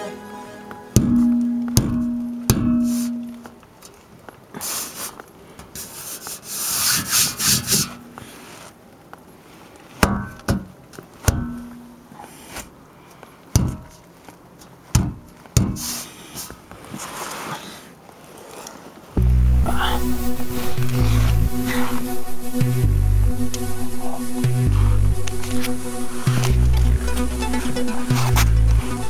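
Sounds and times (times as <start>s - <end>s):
sharp metallic knocks: 1.0s - 3.4s
metal scraping and rubbing: 19.8s - 29.0s.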